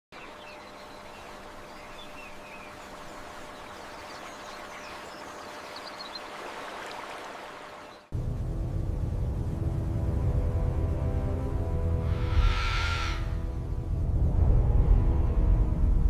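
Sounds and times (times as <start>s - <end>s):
birds chirping faintly: 0.1s - 8.1s
steady rushing ambience: 8.2s - 16.0s.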